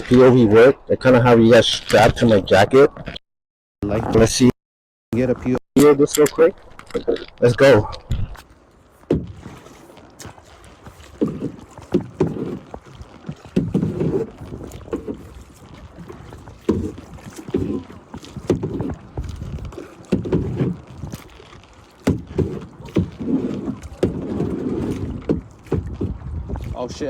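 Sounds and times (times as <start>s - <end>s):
paddle strokes splashing in water: 7.4s - 27.0s.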